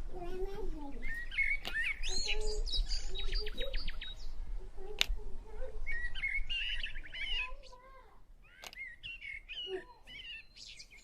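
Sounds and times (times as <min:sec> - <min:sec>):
birds chirping and twittering: 0:00.0 - 0:11.0
lower bird calls: 0:00.8 - 0:11.0
sharp click: 0:01.6 - 0:01.8, 0:05.0 - 0:05.2, 0:08.6 - 0:08.9.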